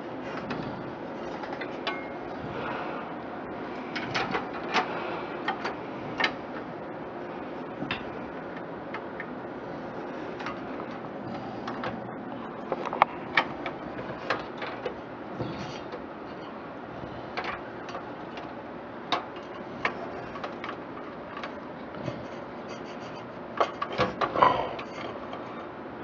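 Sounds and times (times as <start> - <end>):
computer parts clicking and knocking: 12.6 - 16.0, 17.3 - 25.4.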